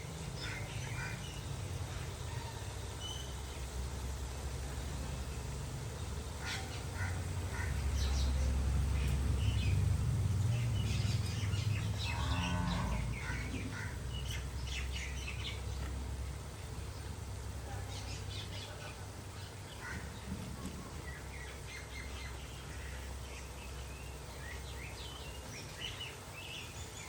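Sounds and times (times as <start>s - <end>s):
small birds chirping: 0.0s - 27.0s
cattle lowing: 12.0s - 14.0s.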